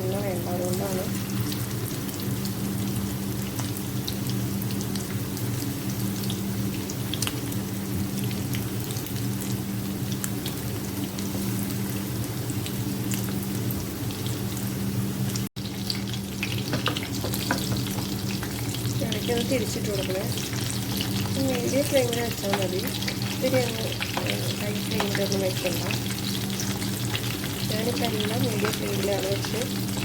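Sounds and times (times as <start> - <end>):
food frying in oil: 0.0 - 30.0.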